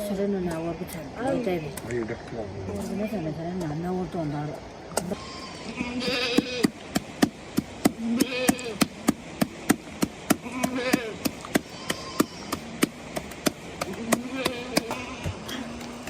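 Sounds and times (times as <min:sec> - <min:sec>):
sharp rhythmic knocks: 0:06.4 - 0:15.5.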